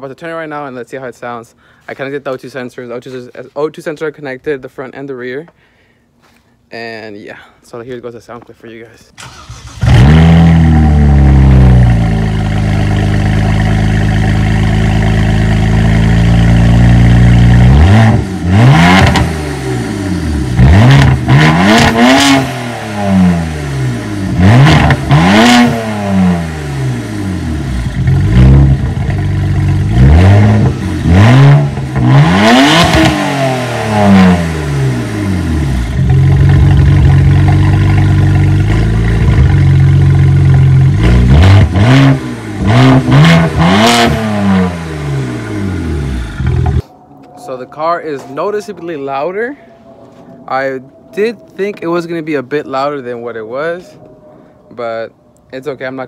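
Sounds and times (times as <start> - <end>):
car engine idling and revving: 9.2 - 46.9.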